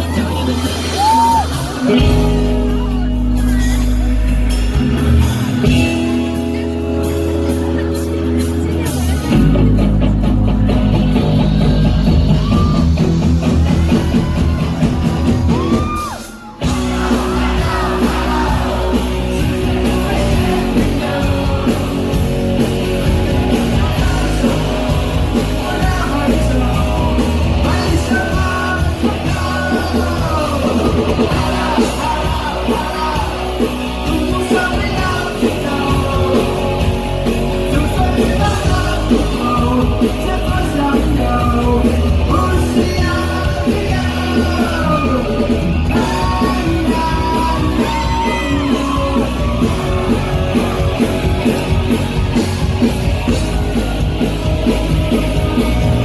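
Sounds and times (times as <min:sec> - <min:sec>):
live rock band playing: 0:00.0 - 0:56.0
person singing: 0:10.9 - 0:52.6.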